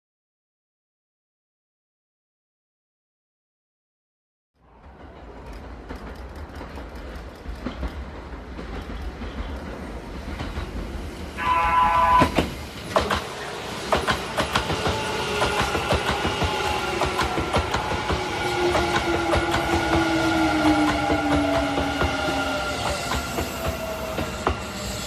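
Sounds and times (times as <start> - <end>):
train whine: 4.6 - 25.0
wheels clacking over rail joints: 4.8 - 11.2, 12.2 - 24.6
train horn blast: 11.4 - 12.4.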